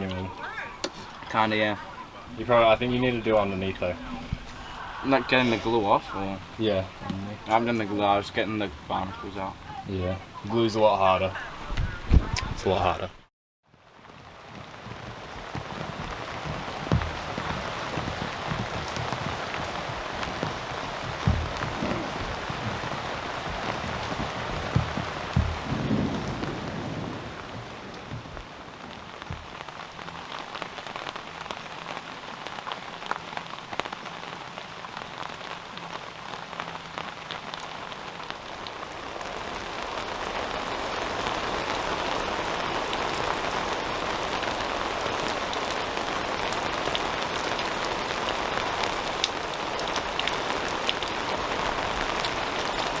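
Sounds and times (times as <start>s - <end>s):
rain pattering: 0.0s - 53.0s
dull knocks: 14.9s - 30.2s.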